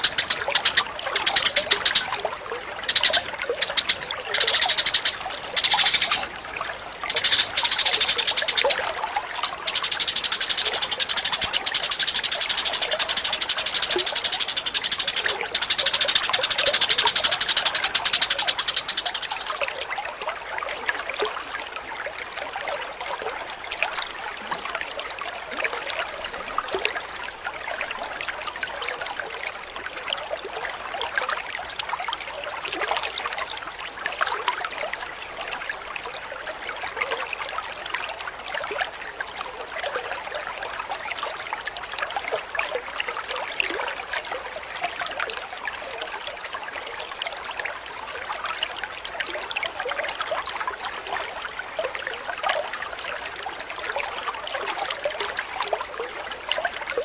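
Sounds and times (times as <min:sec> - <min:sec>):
small bird chattering trills: 0:00.0 - 0:02.1, 0:02.9 - 0:06.3, 0:07.0 - 0:19.7
trickling water: 0:00.0 - 0:57.0.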